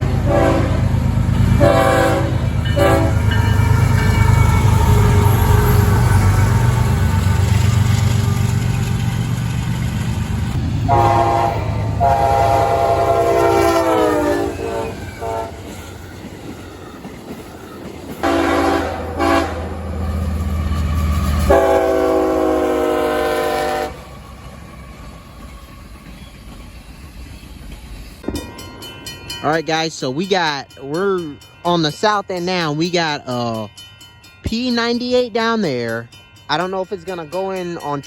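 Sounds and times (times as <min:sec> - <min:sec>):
locomotive air horn blasts: 0:00.0 - 0:01.0, 0:01.6 - 0:03.6, 0:10.8 - 0:15.7, 0:18.2 - 0:19.8, 0:21.5 - 0:24.1
passing train rumble: 0:00.0 - 0:38.0.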